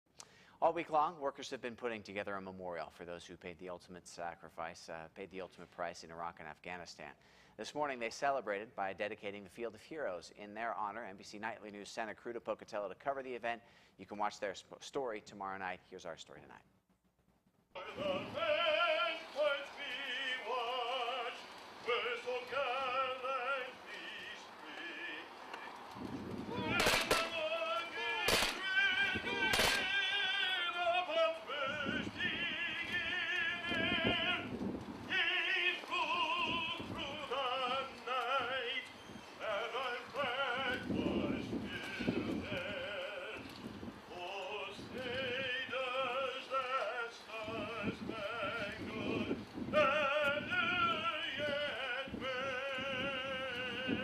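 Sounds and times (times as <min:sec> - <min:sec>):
singer breathing: 0:00.1 - 0:00.6, 0:07.2 - 0:07.6, 0:13.6 - 0:14.0
person singing operatically: 0:17.8 - 0:25.7, 0:26.5 - 0:34.5, 0:35.1 - 0:43.5, 0:44.1 - 0:54.0.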